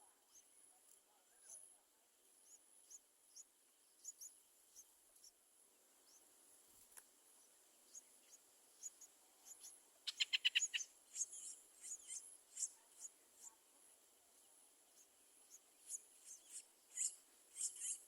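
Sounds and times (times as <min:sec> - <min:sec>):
high bird chirps: 0:09.6 - 0:12.7.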